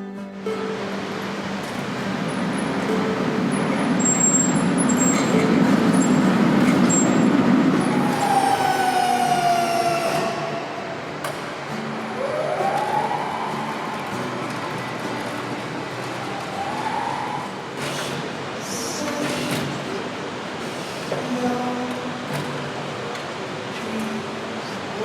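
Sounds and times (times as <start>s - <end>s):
turbine whine: 0.8s - 19.2s
rising whine: 1.1s - 17.7s.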